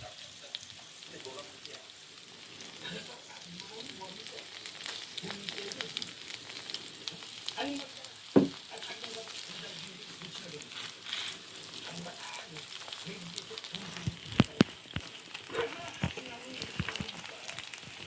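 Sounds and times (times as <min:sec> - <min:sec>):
pancakes sizzling in oil: 0:00.0 - 0:18.0
sharp knock: 0:08.4 - 0:08.6.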